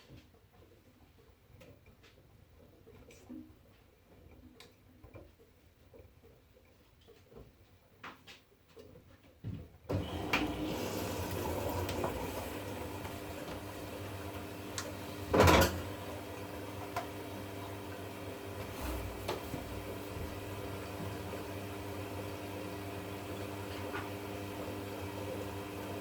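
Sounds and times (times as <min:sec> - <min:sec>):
washing machine running: 0:09.9 - 0:26.0.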